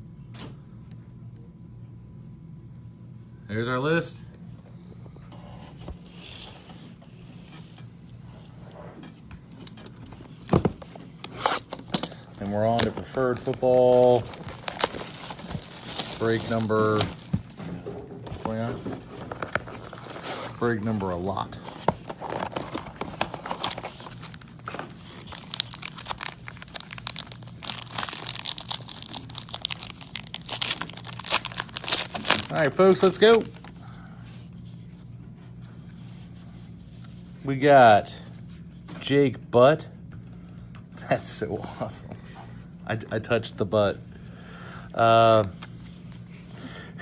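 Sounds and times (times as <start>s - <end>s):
low steady hum: 0.0s - 47.0s
plastic packaging crinkling and tearing: 11.2s - 17.6s, 18.3s - 33.8s.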